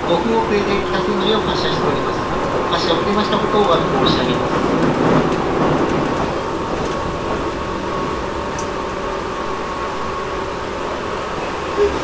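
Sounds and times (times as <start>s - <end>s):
electric train running hum: 0.0s - 12.0s.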